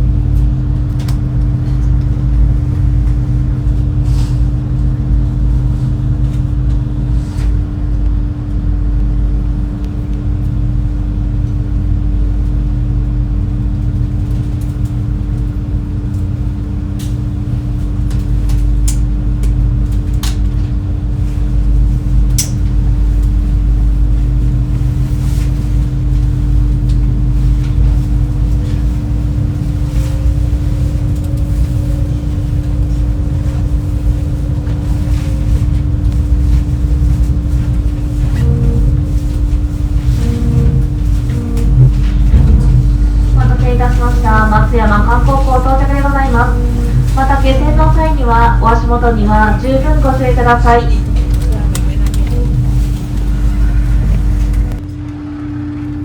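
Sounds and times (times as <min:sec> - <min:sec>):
boat engines droning: 0:00.0 - 0:56.0.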